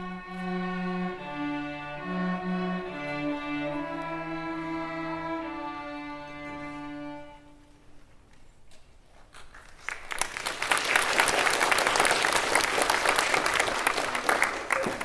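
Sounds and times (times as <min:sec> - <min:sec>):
audience applause: 0:09.5 - 0:15.0.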